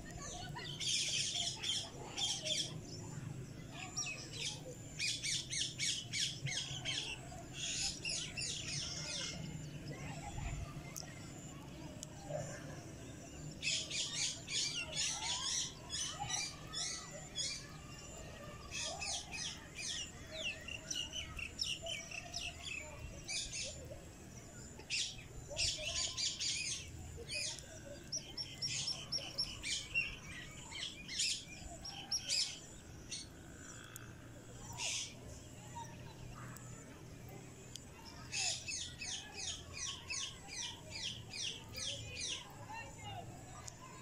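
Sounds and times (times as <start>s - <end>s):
birds chirping: 0.0s - 44.0s.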